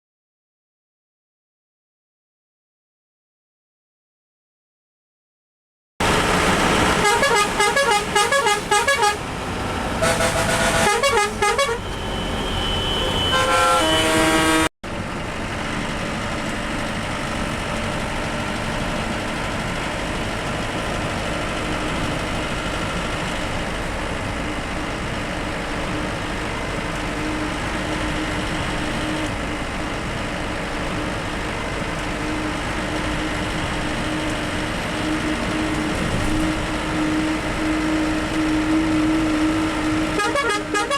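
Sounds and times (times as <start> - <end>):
bus engine and road noise: 6.0 - 40.9
musical horn tones: 7.0 - 9.3, 10.0 - 14.7, 35.1 - 40.9.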